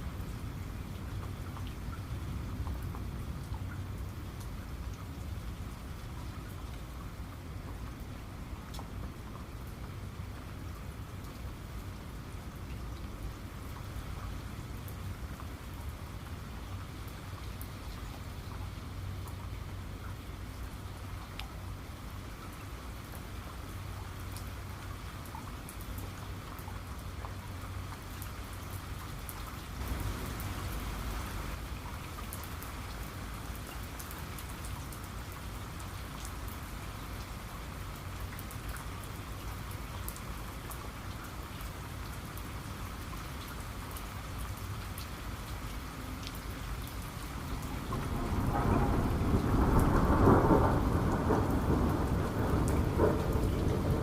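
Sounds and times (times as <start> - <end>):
steady rain falling: 0.0 - 54.0
raindrop ticks: 0.2 - 54.0
low thunder rumble: 47.4 - 54.0.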